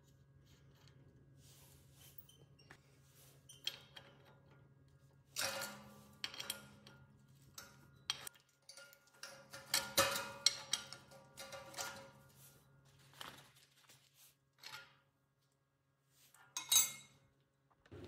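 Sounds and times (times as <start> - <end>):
metal tools clinking and scraping: 16.4 - 17.3.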